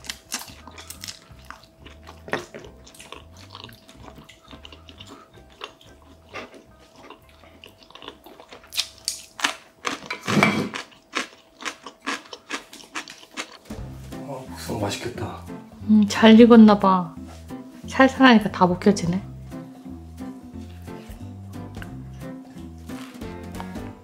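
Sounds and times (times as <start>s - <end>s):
person chewing food: 0.0s - 13.7s, 20.2s - 24.0s
faint background music: 0.0s - 24.0s.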